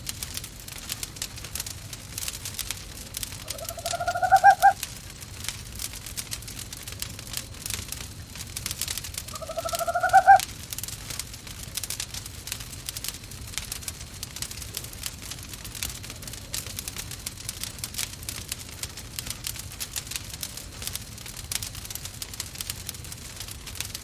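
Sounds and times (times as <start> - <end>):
wood fire crackling: 0.0 - 24.0
owl calling: 3.4 - 4.8, 9.3 - 10.4.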